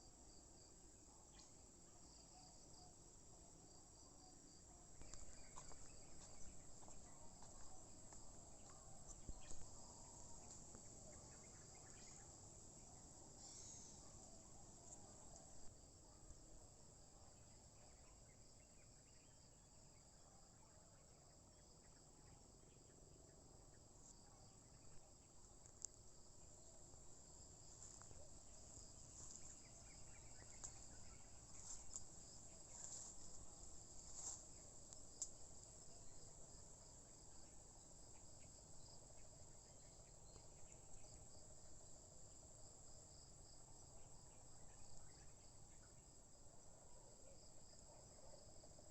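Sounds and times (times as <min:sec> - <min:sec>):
crickets trilling: 0:03.7 - 0:15.9, 0:24.7 - 0:46.2.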